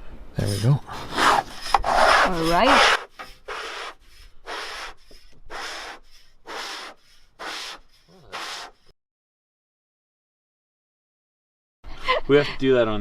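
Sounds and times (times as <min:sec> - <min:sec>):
rhythmic rubbing strokes: 0:00.4 - 0:08.9.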